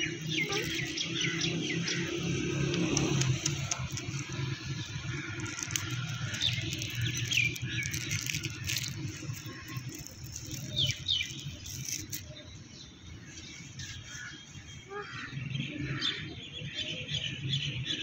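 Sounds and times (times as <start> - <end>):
falling bird calls: 0.0 - 16.3
small birds chirping: 0.0 - 18.0
scattered clicks: 0.2 - 12.4.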